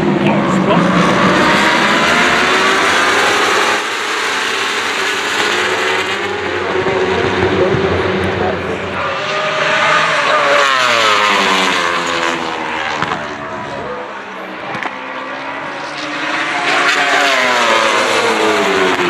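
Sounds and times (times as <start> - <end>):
racing motorcycles passing at high revs: 0.0 - 19.0.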